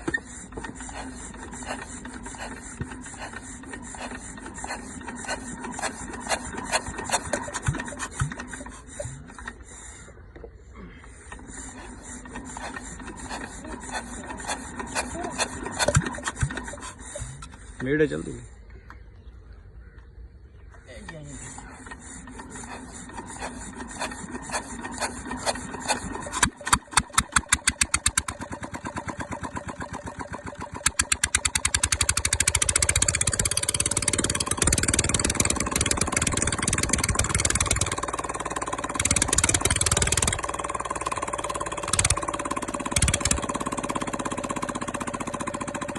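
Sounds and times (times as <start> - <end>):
diesel engine starting and running: 0.0 - 18.5, 21.0 - 45.9
engine revving: 22.1 - 45.9.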